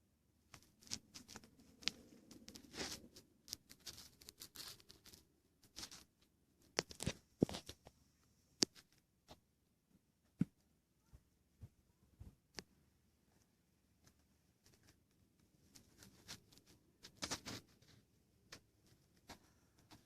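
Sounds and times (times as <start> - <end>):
rustling and clicking of handled things: 0.5 - 8.0, 13.4 - 20.0.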